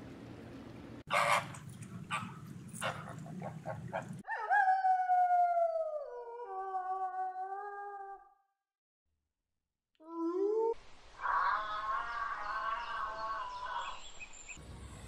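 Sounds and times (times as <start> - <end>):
wolf howling: 4.2 - 8.3.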